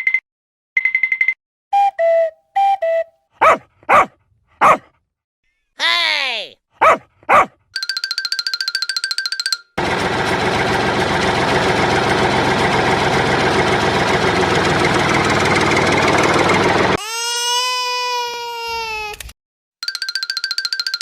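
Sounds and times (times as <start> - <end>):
tractor engine knocking: 9.8 - 17.0.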